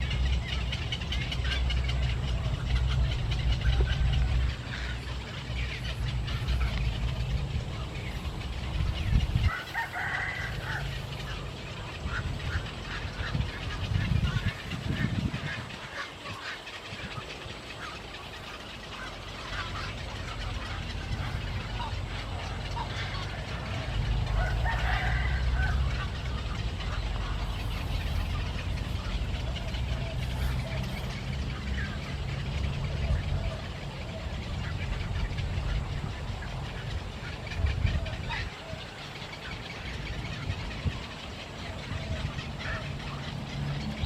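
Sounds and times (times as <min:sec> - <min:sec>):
low rumble: 0:00.0 - 0:09.5
birds chirping: 0:00.0 - 0:44.0
steady low rumble: 0:00.0 - 0:44.0.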